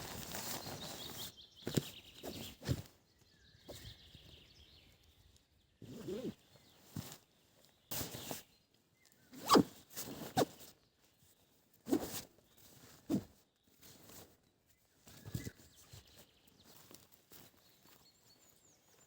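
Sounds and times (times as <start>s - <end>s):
zipper being pulled: 5.8s - 6.4s, 9.4s - 10.6s.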